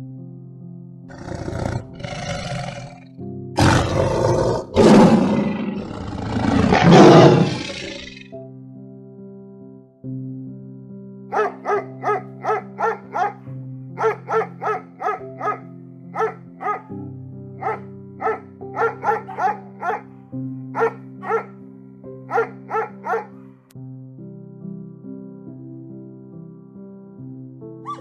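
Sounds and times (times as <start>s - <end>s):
background music of held chords: 0.0s - 28.0s
dog barking: 11.3s - 20.1s, 20.8s - 21.5s, 22.3s - 23.4s.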